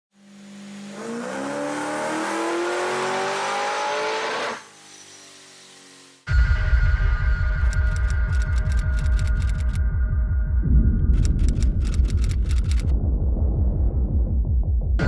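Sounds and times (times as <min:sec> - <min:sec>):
engine revving at full throttle: 0:00.2 - 0:06.2.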